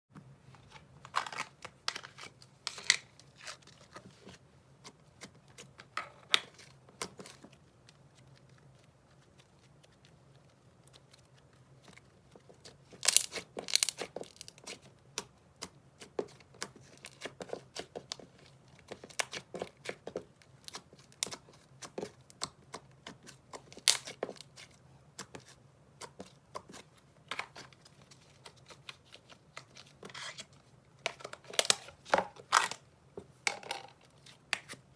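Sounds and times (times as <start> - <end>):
slime crackling and popping: 13.0 - 15.7.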